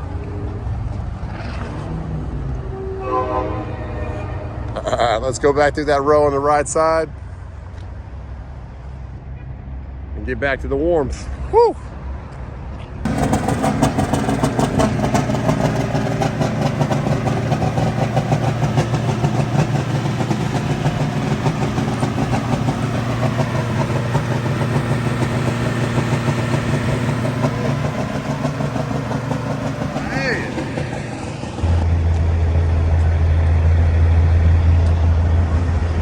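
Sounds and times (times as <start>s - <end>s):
diesel engine idling: 13.1s - 35.6s.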